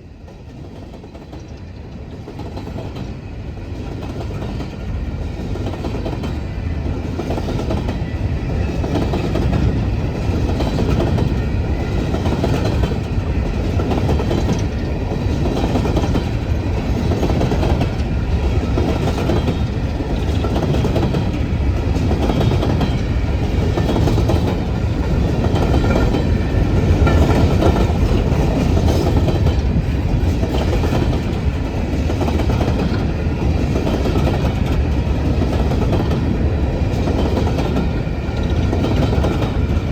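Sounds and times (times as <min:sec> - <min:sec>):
train rumbling past: 0:00.0 - 0:39.9
steel wheels clicking over rail joints: 0:08.6 - 0:39.9.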